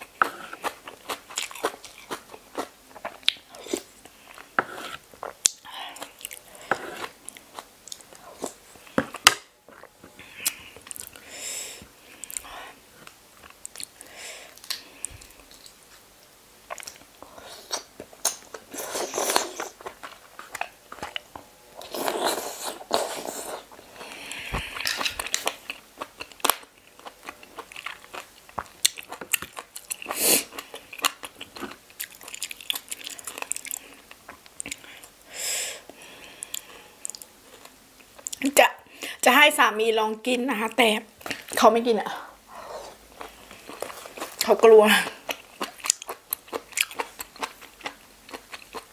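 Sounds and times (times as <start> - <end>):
crunchy chewing: 0.0 - 11.2, 16.7 - 35.1, 45.1 - 48.9.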